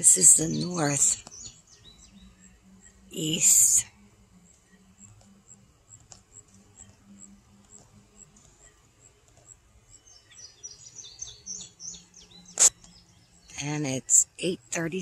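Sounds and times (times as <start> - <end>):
high bird chirp: 0.0 - 3.9, 9.9 - 15.0
bird song notes: 0.0 - 15.0.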